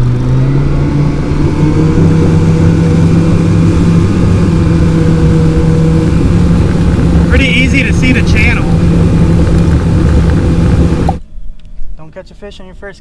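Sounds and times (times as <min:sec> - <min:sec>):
boat motor running: 0:00.0 - 0:11.2.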